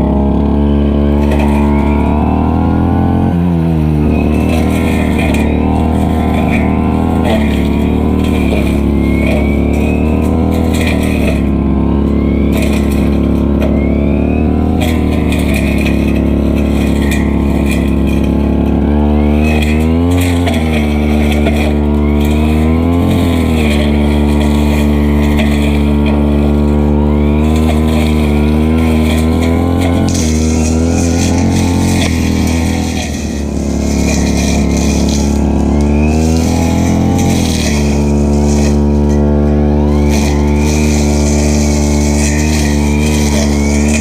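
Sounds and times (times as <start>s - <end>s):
brushcutter engine running fast: 0.0s - 44.0s.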